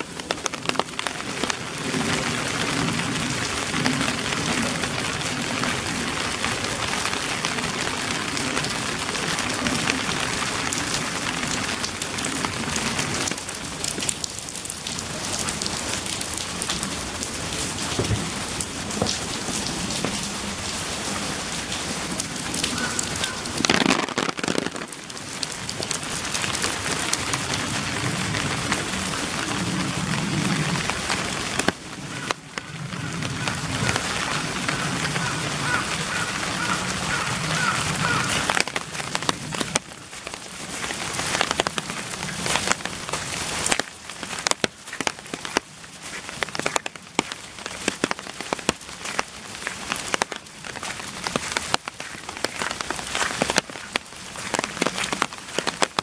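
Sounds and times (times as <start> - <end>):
heavy rain hissing: 0.0 - 56.0
sharp water drips: 33.4 - 56.0.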